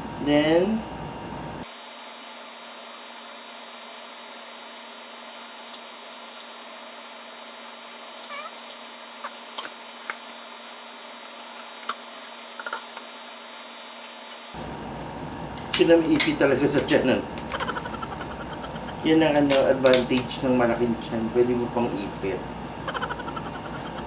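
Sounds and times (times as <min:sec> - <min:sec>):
steady background hum: 0:00.0 - 0:24.0
faint short squeaks: 0:08.2 - 0:08.8.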